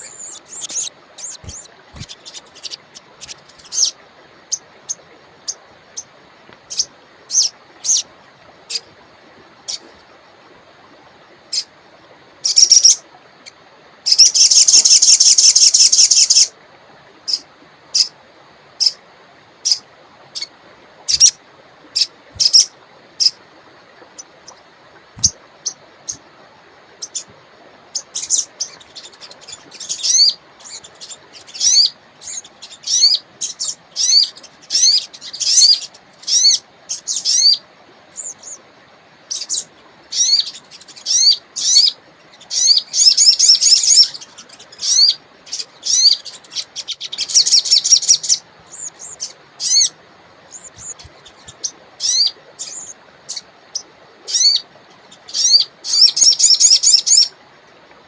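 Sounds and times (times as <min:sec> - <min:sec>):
songbird chirping: 0:00.0 - 0:08.8, 0:27.9 - 0:38.6, 0:39.3 - 0:57.3
faint steady hiss: 0:00.0 - 0:58.0.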